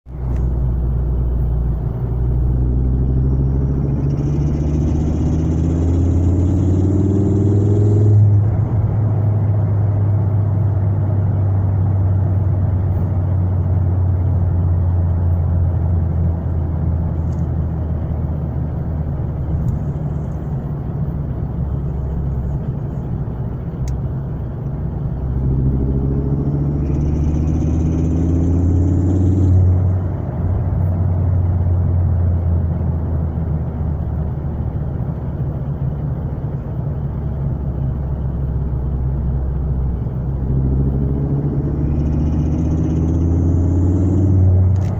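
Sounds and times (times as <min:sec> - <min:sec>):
car engine revving: 0:00.1 - 0:44.9.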